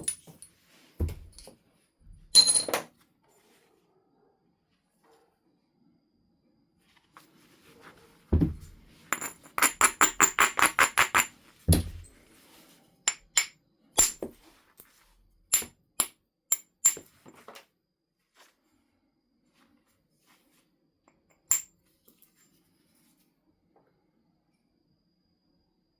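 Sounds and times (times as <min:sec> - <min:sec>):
stone clinking with glassy ring: 0:09.1 - 0:12.1, 0:13.1 - 0:14.3.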